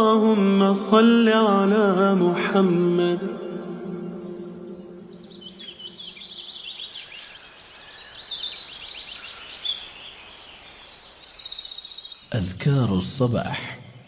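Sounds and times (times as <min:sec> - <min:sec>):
small birds chirping and whistling: 0:04.4 - 0:14.0.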